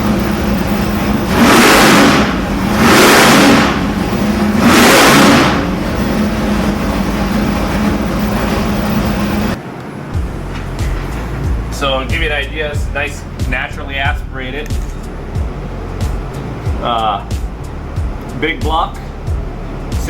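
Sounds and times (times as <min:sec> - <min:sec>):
engine revving on a dyno: 0:00.0 - 0:09.6.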